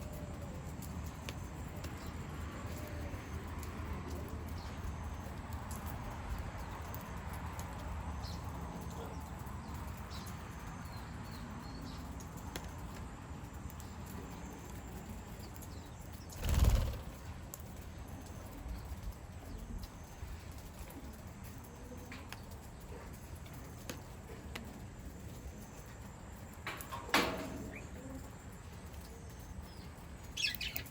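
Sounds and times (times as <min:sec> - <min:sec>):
wings flapping: 0:16.3 - 0:17.3.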